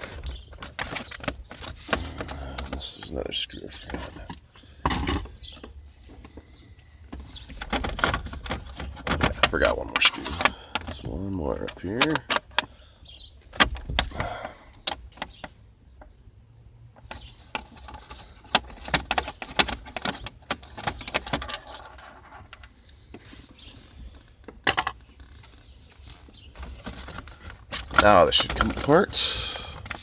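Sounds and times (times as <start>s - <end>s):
plastic trim rattling: 7.1s - 12.7s, 17.0s - 22.1s.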